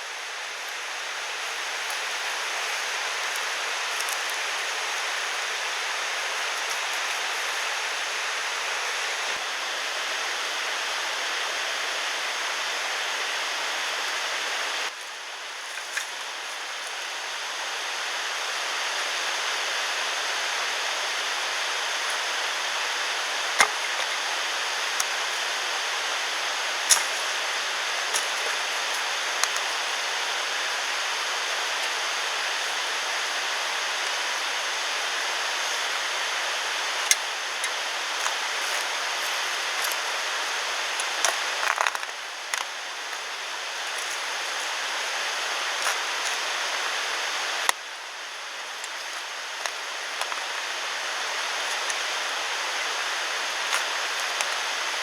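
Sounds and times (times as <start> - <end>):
flowing water rushing: 15.7 - 55.0.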